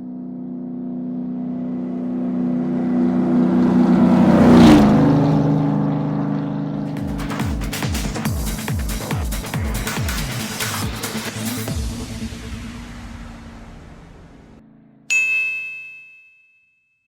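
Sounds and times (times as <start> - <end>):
vehicle engine passing by: 0.0 - 8.4, 11.4 - 15.0
electronic music with thumping beat: 6.8 - 14.4.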